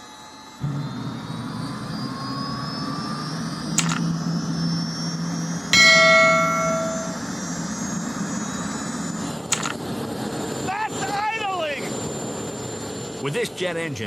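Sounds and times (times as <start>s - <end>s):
turbine engine whine: 0.0s - 14.0s
short click: 3.8s - 4.0s, 9.5s - 9.8s
bell-like ding: 5.8s - 7.2s.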